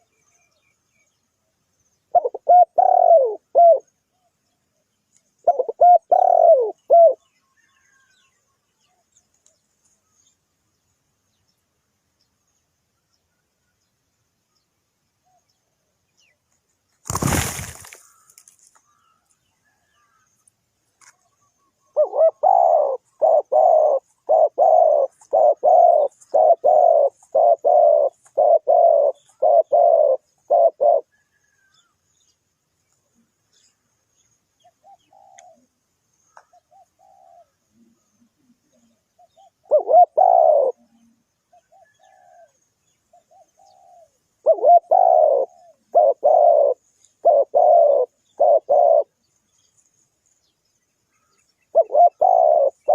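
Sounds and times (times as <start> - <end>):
dove cooing: 2.1 - 3.9, 5.4 - 8.0, 21.9 - 31.6, 34.7 - 49.2, 51.7 - 52.9.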